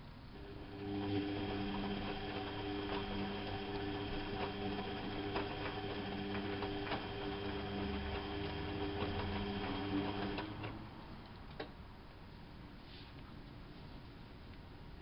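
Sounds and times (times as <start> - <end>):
washing machine motor hum: 0.0 - 11.8.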